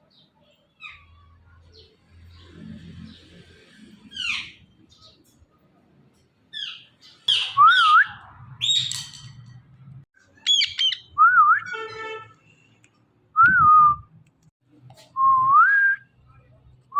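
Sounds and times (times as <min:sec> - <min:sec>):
parrot squawking: 0:10.4 - 0:11.1.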